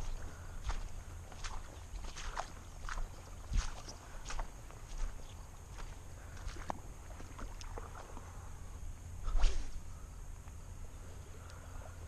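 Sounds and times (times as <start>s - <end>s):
footsteps walking: 0.0s - 8.3s.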